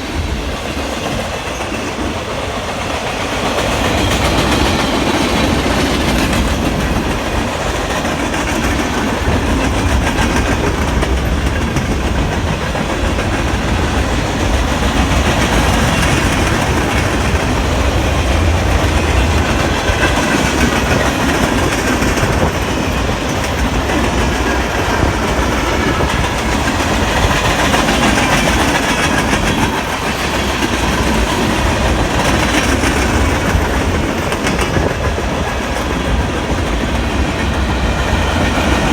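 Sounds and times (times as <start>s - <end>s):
freight train wheels rumbling: 0.0s - 38.9s
wheels clacking over rail joints: 0.2s - 38.9s.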